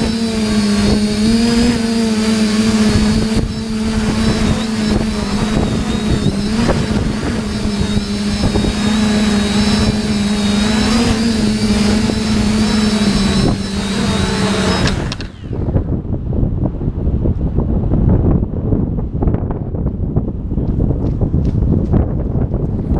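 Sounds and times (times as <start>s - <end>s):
drone motors whining: 0.0s - 16.0s
wind buffeting microphone: 0.0s - 22.9s.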